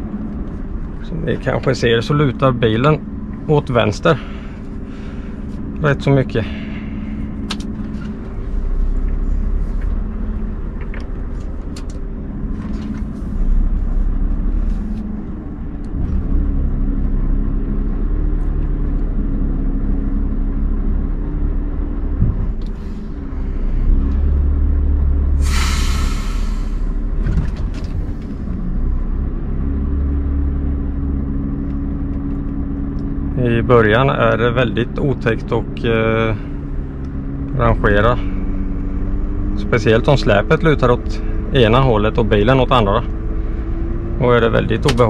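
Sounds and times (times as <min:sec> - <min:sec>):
diesel truck engine running: 0:00.0 - 0:45.0
loud air hiss: 0:25.4 - 0:27.0.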